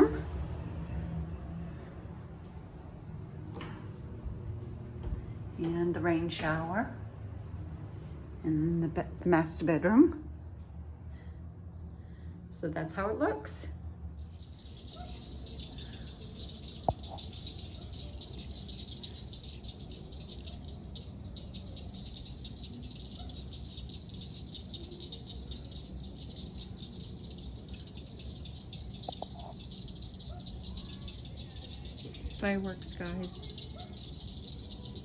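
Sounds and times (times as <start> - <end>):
night insects trilling: 14.1 - 35.0.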